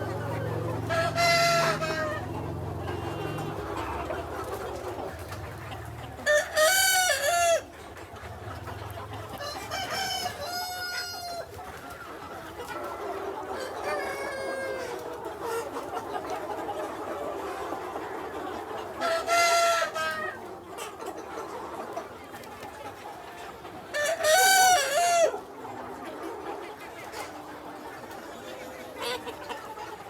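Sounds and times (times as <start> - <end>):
roosters crowing: 0.0 - 4.3, 9.4 - 11.6, 24.1 - 25.4
hens clucking: 0.0 - 30.0.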